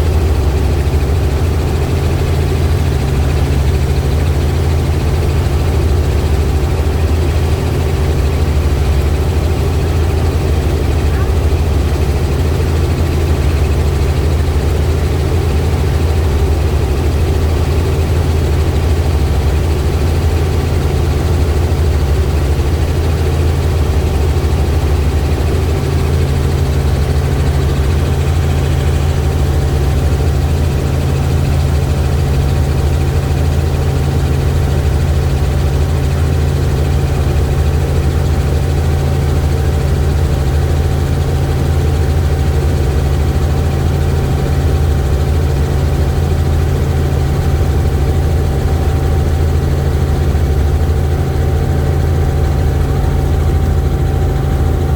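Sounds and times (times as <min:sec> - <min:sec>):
helicopter rotor and engine drone: 0:00.0 - 0:54.9
faint steady whine: 0:21.4 - 0:35.1.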